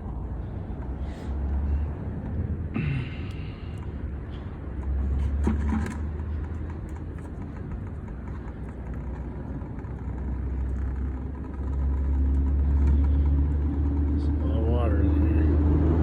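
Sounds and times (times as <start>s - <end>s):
low engine-like rumble: 0.0s - 16.0s.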